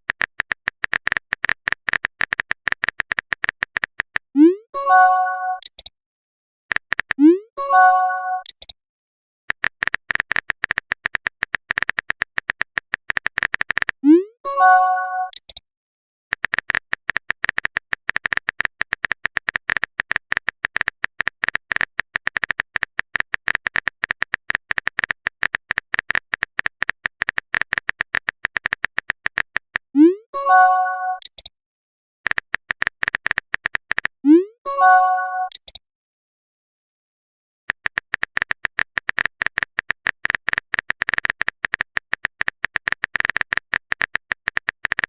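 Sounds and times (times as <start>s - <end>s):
keyboard typing clicks: 0.1s - 5.9s, 6.7s - 8.8s, 9.5s - 15.6s, 16.3s - 29.9s, 30.5s - 31.5s, 32.3s - 35.8s, 37.7s - 45.0s
bright multi-note message chime: 4.8s - 5.6s, 7.6s - 8.4s, 14.5s - 15.3s, 30.4s - 31.2s, 34.7s - 35.5s.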